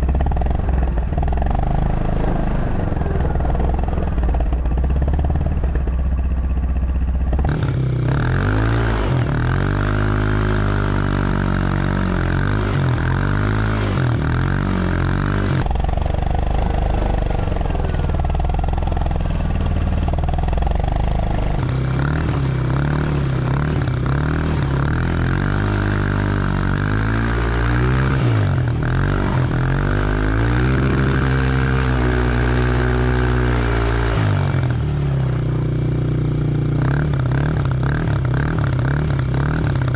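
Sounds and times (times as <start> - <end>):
small motor vehicle engine revving: 7.4 - 35.7.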